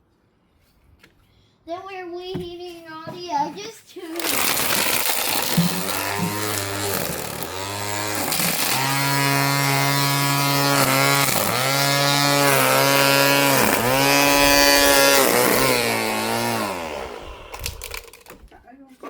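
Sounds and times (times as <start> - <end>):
string trimmer motor whining: 4.1 - 18.5.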